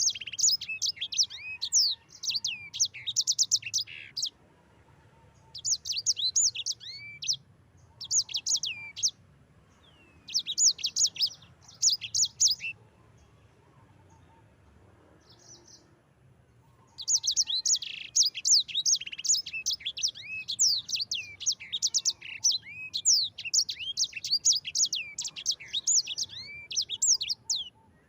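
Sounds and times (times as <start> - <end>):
songbird singing rolling song: 0.0 - 4.4, 5.3 - 14.4, 15.1 - 28.0.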